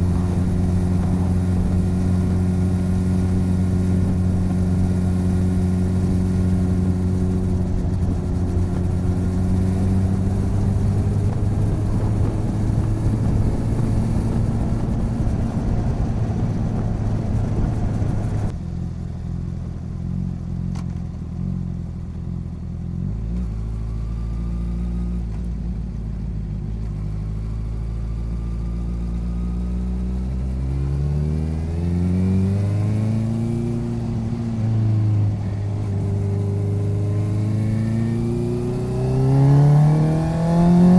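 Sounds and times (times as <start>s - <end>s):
rushing wind: 0.0s - 18.5s, 31.5s - 40.9s
motorcycle engine running: 0.0s - 40.9s.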